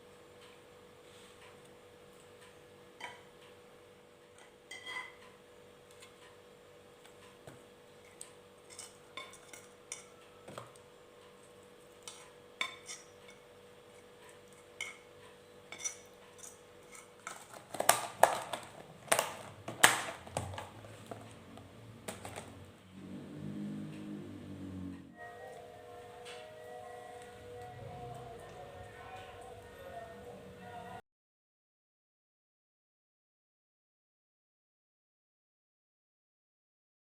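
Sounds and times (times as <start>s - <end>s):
dishes and utensils clinking: 4.4s - 5.2s, 8.0s - 10.7s, 12.0s - 15.1s, 15.7s - 18.6s.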